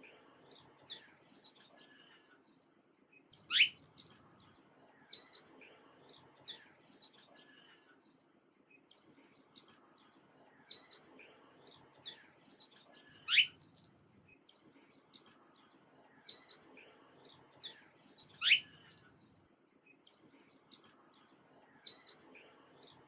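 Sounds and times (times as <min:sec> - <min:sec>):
small birds chirping: 0:00.4 - 0:23.0
loud sweeping bird chirp: 0:03.5 - 0:03.8, 0:13.3 - 0:13.5, 0:18.4 - 0:18.7.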